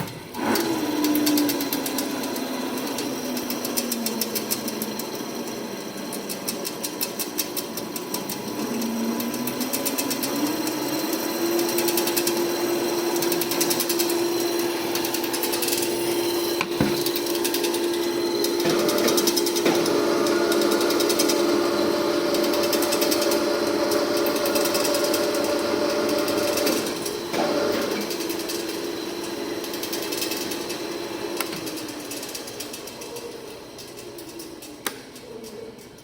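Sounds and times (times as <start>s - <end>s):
electric drive humming: 7.9s - 27.4s.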